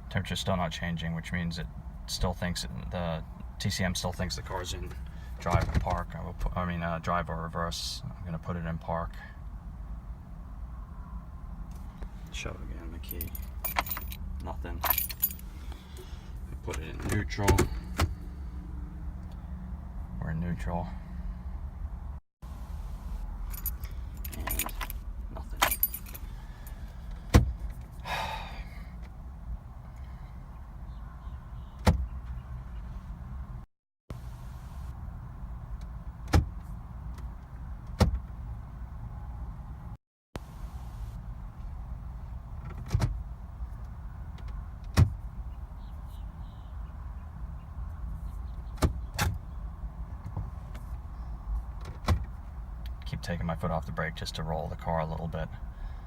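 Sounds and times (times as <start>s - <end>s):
car keys jangling: 13.0s - 15.7s, 23.4s - 26.8s.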